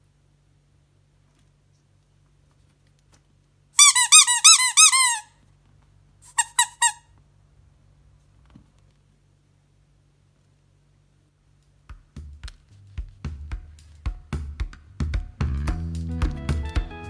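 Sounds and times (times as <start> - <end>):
high arching squeaks: 3.8 - 5.3, 6.3 - 7.0.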